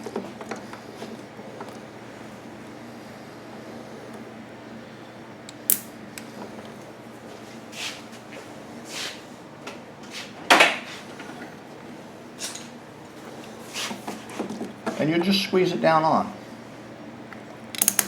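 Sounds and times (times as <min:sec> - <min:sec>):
pliers and hose clamp clicking: 0:05.5 - 0:06.3, 0:17.7 - 0:18.0.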